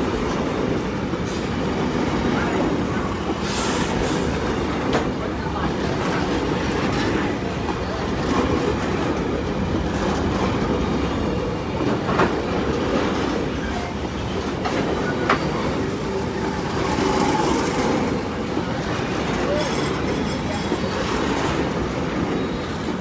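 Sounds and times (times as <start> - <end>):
train wheels rumbling on track: 0.0 - 23.0
wheels knocking on rail joints: 5.8 - 22.4.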